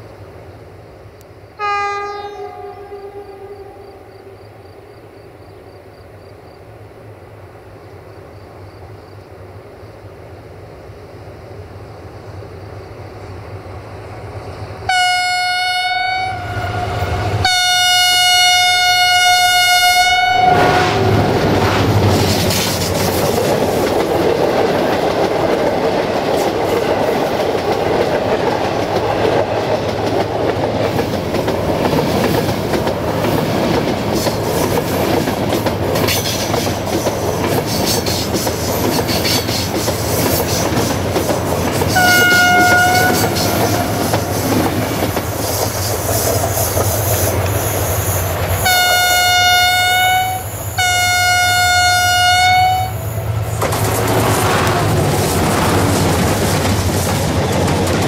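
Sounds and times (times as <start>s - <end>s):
passing train rush: 0.0s - 58.0s
locomotive horn blasts: 1.6s - 4.2s, 14.9s - 21.3s, 42.0s - 43.5s, 48.6s - 53.1s
train wheels clattering over rail joints: 21.2s - 48.7s, 53.5s - 58.0s.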